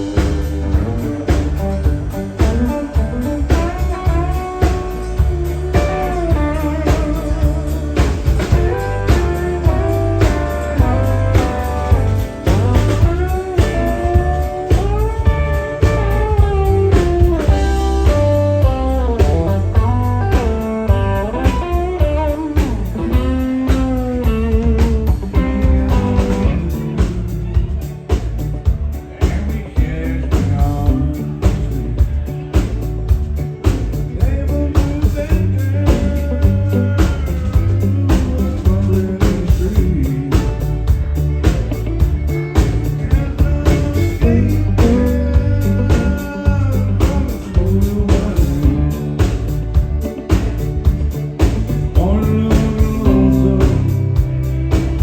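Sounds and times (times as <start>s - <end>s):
bass: 0.0s - 55.0s
drum kit beat: 0.0s - 55.0s
electric guitar lead with bending notes: 0.0s - 55.0s
electric guitar solo: 0.8s - 27.4s.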